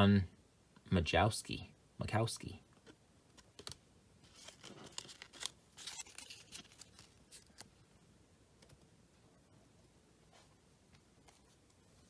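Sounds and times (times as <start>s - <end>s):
cards clicking and rustling: 3.3s - 7.8s.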